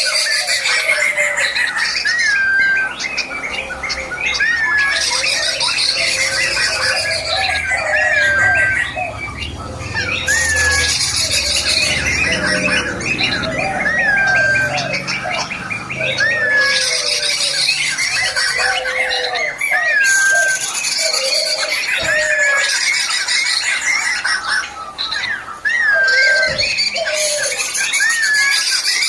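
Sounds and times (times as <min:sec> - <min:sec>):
bird singing warbled phrases: 0:00.0 - 0:29.0
high chattering: 0:00.0 - 0:29.0.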